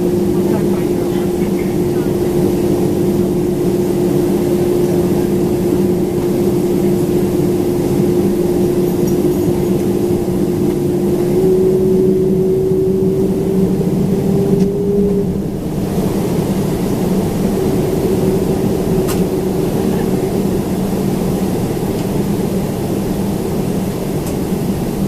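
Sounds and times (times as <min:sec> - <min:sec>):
jet engines rumbling in cabin: 0:00.0 - 0:25.0.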